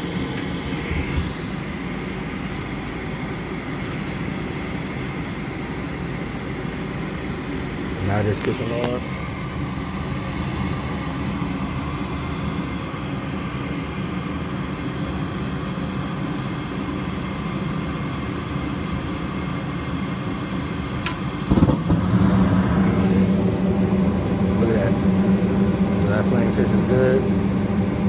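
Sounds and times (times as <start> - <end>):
gas burners lighting: 0.0 - 5.9, 6.8 - 13.0, 20.8 - 28.0
furnace inducer motor humming: 0.0 - 28.0.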